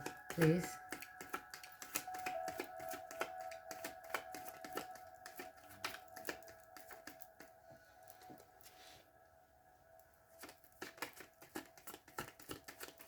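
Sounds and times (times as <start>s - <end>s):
cards being shuffled: 0.0s - 7.6s, 10.4s - 13.0s.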